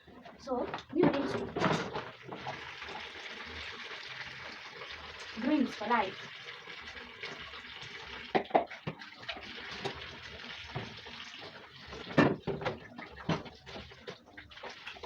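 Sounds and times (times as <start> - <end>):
tap water running into sink: 0.0 - 15.0
knocks and splashes: 0.5 - 2.7, 8.3 - 15.0.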